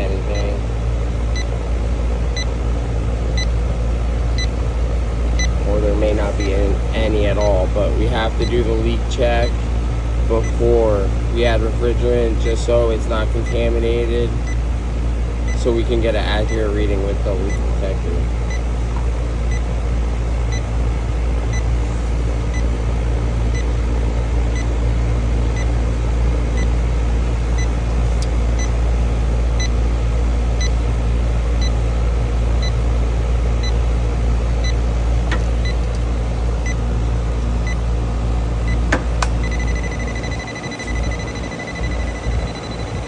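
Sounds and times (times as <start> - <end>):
leak detector ticking and beeping: 0.0 - 0.6, 1.2 - 1.6, 2.3 - 2.6, 3.3 - 3.7, 4.3 - 14.8, 15.4 - 18.8, 19.4 - 19.7, 20.4 - 37.9, 38.6 - 43.0
air conditioner condenser humming: 0.0 - 43.0
clicks: 35.2 - 36.1, 38.9 - 39.5.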